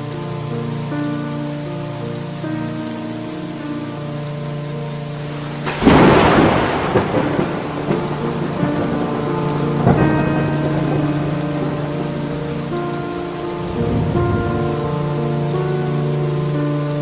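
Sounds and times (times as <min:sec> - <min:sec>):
steady rain: 0:00.0 - 0:17.0
thunder cracking and rumbling: 0:05.2 - 0:16.5.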